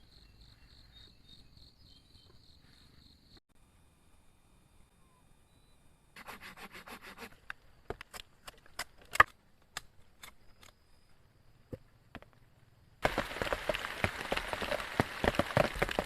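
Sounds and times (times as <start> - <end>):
rubbing or sawing wood strokes: 6.2 - 7.4.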